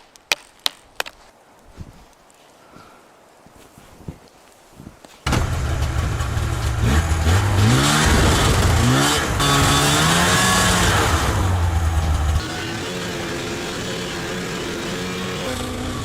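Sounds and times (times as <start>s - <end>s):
engine running and revving: 5.3s - 16.0s.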